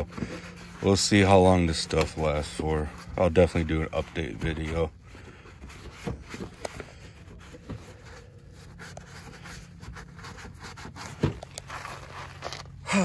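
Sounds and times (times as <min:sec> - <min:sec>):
cloth rubbing on plastic: 0:00.0 - 0:12.8
low steady hum: 0:00.0 - 0:13.0.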